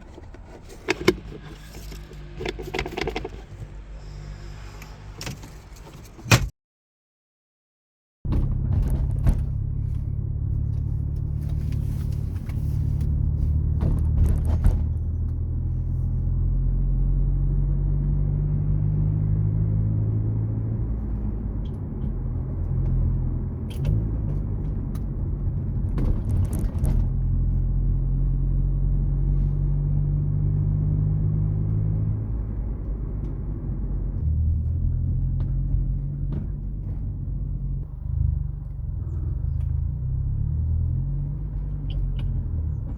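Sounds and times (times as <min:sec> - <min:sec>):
car engine and road rumble: 0:00.0 - 0:06.5, 0:08.3 - 0:42.9.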